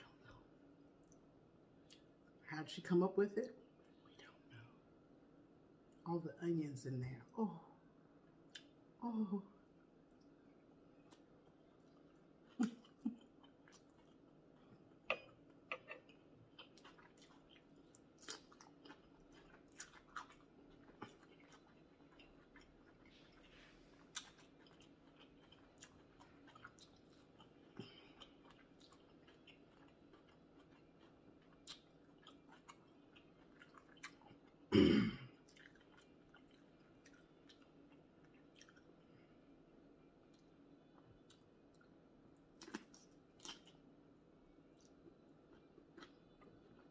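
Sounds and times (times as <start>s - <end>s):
person chewing and lip smacking: 1.0s - 2.4s, 8.4s - 8.9s, 11.0s - 34.7s, 35.4s - 39.1s, 40.2s - 43.9s, 44.7s - 46.9s.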